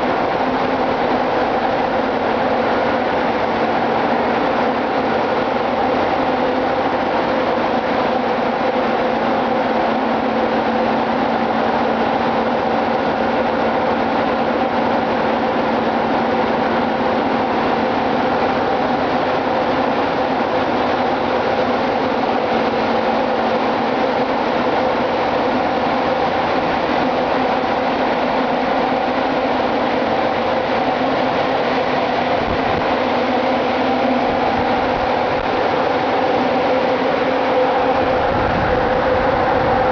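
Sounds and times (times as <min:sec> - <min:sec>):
engine room machinery drone: 0:00.0 - 0:39.9.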